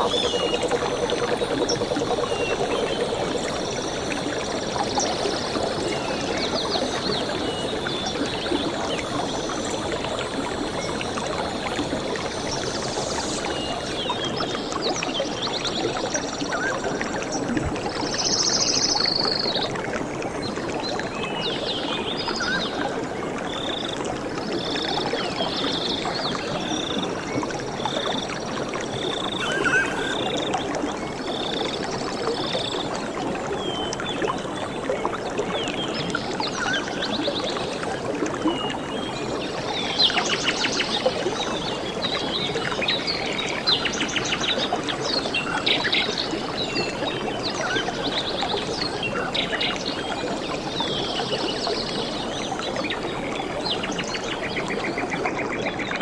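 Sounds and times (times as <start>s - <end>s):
flowing water rushing: 0.0s - 43.7s
bird trilling and chirping: 29.4s - 30.2s.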